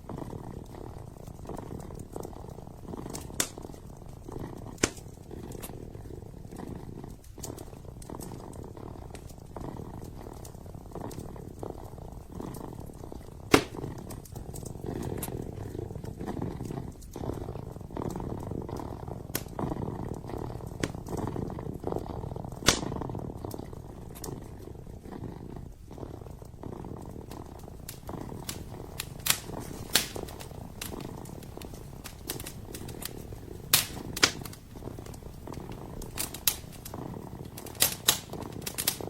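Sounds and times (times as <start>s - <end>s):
kitten purring: 0.0s - 39.0s
wood fire crackling pops: 0.0s - 39.0s.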